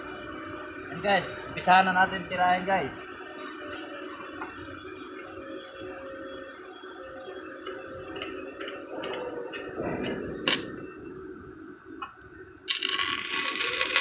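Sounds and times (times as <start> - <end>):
sharp clicks: 7.7 - 10.8.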